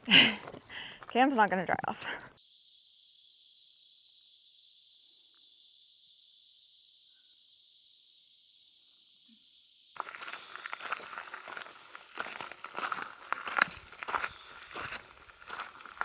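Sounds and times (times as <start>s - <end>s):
footsteps on a trail: 0.0s - 1.3s, 10.0s - 16.0s
high-pitched insect chorus: 2.4s - 16.0s.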